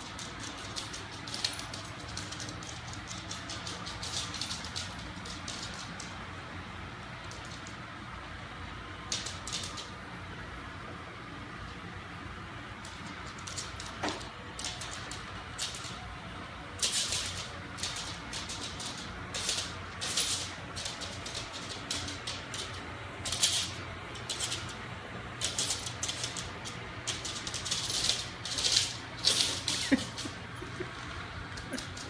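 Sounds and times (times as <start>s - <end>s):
debris rattling and clicking: 0.0s - 6.1s, 9.1s - 10.0s, 12.8s - 16.1s, 16.8s - 32.0s.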